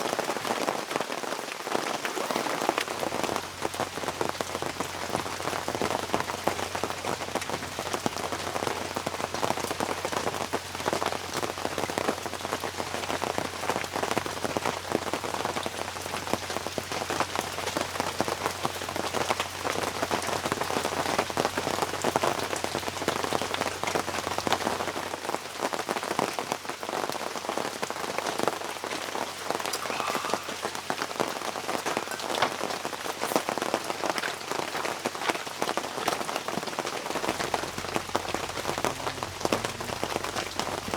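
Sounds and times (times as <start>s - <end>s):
rain falling on a surface: 0.0s - 40.9s
faint low hum: 37.1s - 40.9s.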